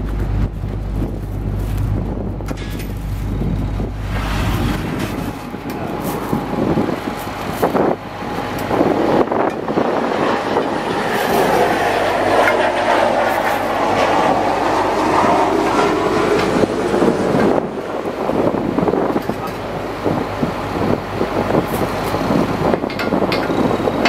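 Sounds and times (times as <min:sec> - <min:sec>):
mechanical whine: 0:00.0 - 0:24.0
truck mechanical rumble: 0:00.0 - 0:24.0
metallic clatter: 0:00.9 - 0:06.4.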